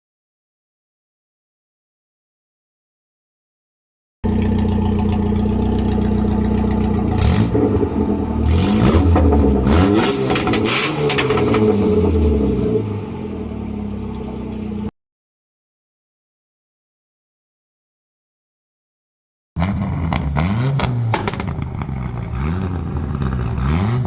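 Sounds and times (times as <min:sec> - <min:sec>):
car engine idling and revving: 0:04.2 - 0:14.9, 0:19.6 - 0:24.0.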